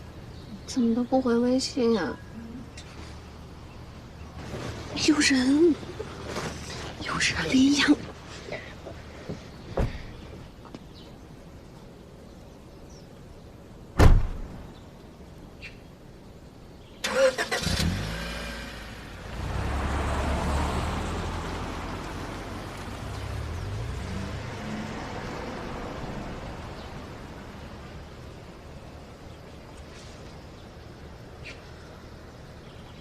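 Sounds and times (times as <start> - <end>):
loud thud: 14.0 - 14.7
car engine starting and running: 17.0 - 27.8.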